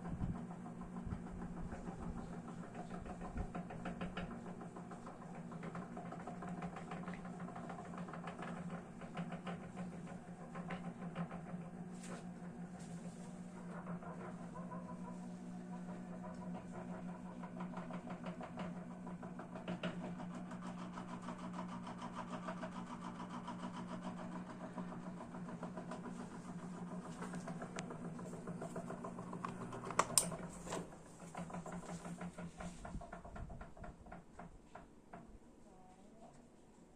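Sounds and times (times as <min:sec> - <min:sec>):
fan rattling tick: 0:00.0 - 0:15.2, 0:15.9 - 0:34.8
fan motor humming: 0:00.0 - 0:36.4.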